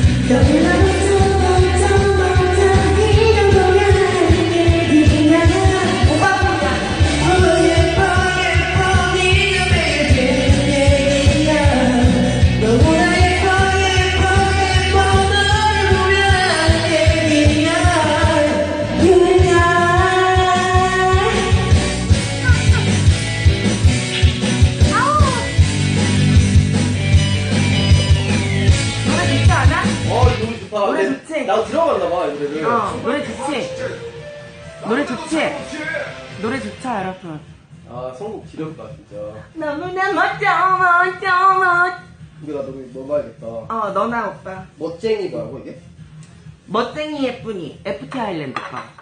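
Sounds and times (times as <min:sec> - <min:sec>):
person singing karaoke: 0:00.0 - 0:30.4
pop backing track with drums: 0:00.0 - 0:49.0.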